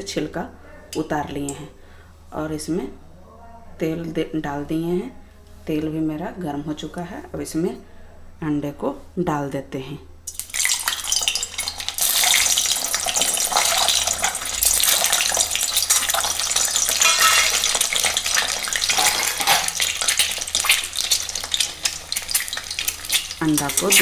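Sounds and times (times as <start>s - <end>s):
eggs sizzling in hot oil: 10.3s - 24.0s.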